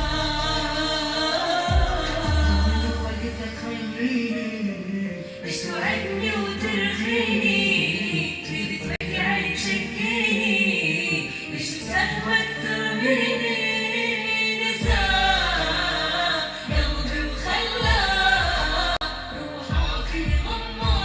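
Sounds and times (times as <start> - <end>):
deep bass: 0.0 - 4.6, 14.8 - 21.0
person singing with music: 0.0 - 21.0.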